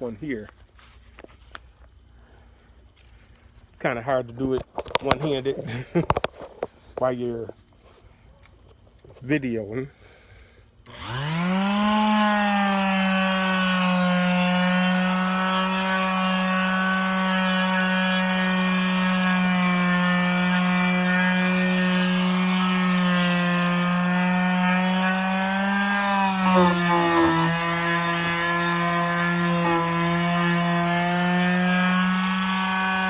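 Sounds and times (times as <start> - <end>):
palm sander humming: 10.8 - 33.0.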